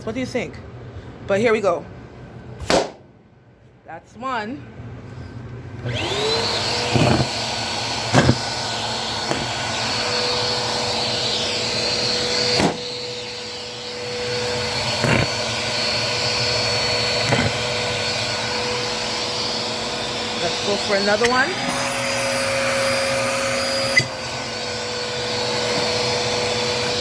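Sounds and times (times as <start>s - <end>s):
vacuum cleaner motor whine: 5.8s - 27.0s
vacuum clacking on carpet: 6.6s - 10.0s.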